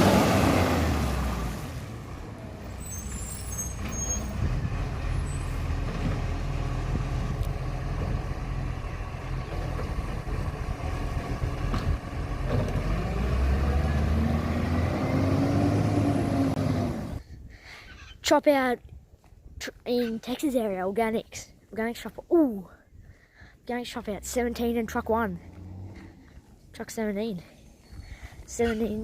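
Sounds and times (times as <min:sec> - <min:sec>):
garbage truck diesel engine: 0:00.0 - 0:17.2.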